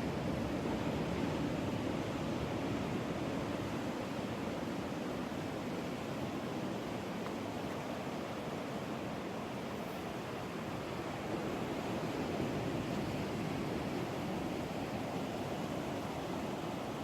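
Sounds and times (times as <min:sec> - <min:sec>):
ocean surf washing: 0:00.0 - 0:17.0.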